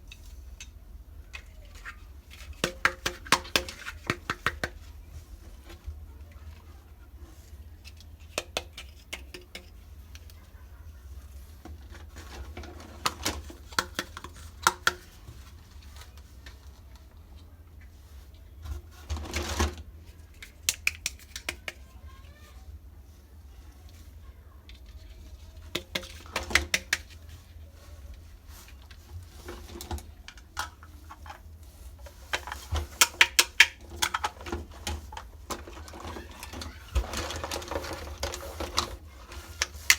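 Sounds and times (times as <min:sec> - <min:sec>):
plastic toy pieces clicking: 0:20.4 - 0:21.8, 0:32.4 - 0:34.4.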